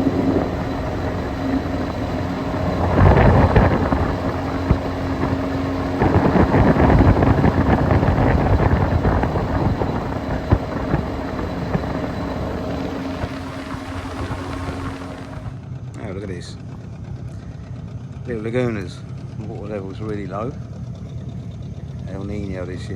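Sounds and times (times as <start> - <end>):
outboard motor running: 0.0 - 15.6
wind buffeting microphone: 0.0 - 15.6.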